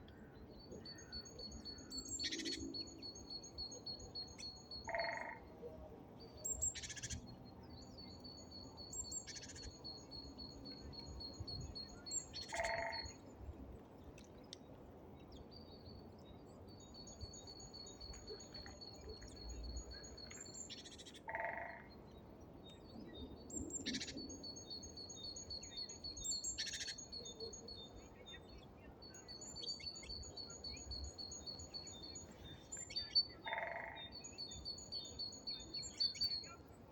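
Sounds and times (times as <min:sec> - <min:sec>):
songbirds calling rapidly: 0:11.2 - 0:13.2, 0:23.6 - 0:28.5.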